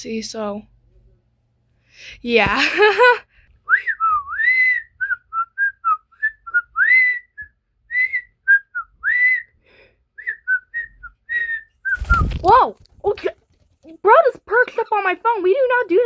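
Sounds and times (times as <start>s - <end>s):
short whistled notes: 3.7s - 9.6s, 10.2s - 12.4s.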